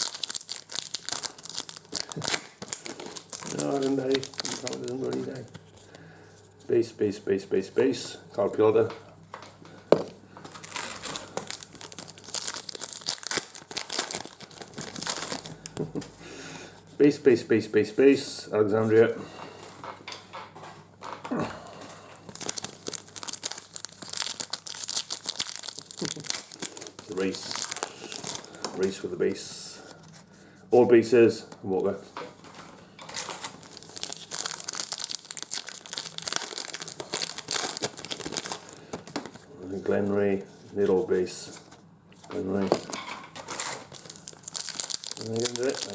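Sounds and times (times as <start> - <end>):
wrapper crinkling and tearing: 0.0 - 5.8, 10.4 - 15.9, 22.3 - 29.0, 32.5 - 39.4, 42.4 - 45.9.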